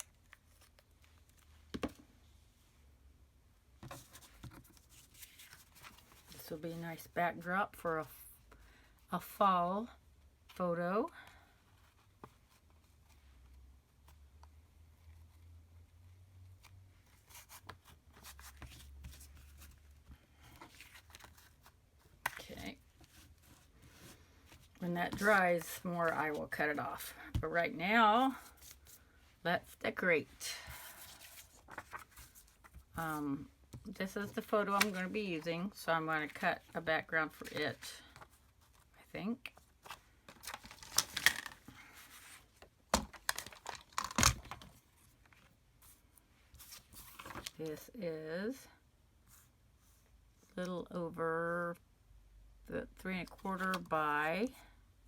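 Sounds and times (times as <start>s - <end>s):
paper and card rustling: 3.8s - 7.2s, 17.0s - 38.9s, 39.5s - 47.6s.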